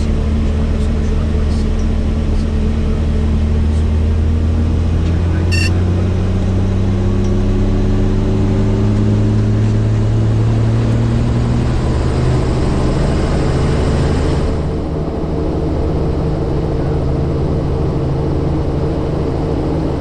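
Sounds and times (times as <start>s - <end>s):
short high beep: 5.5s - 5.8s.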